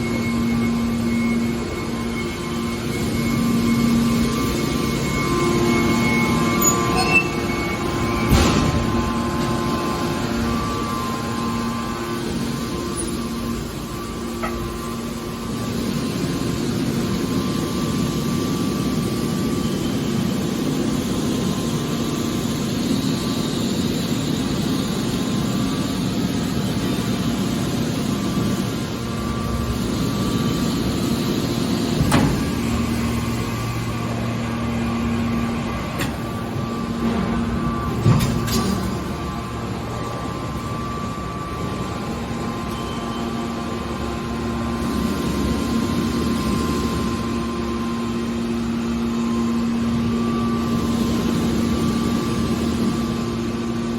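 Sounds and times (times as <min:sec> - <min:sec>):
hydraulic pump humming: 0:00.0 - 0:18.0, 0:26.6 - 0:53.9
machine noise: 0:00.0 - 0:53.9.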